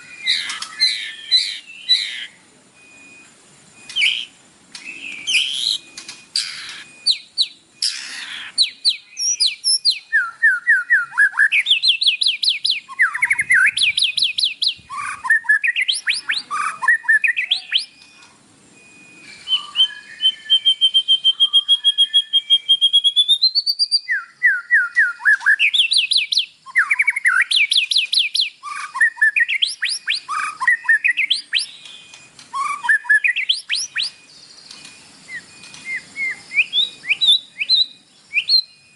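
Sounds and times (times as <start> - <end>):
fast bird trill: 0.0 - 2.4, 3.8 - 18.0, 19.4 - 38.9
songbird singing: 0.0 - 38.9.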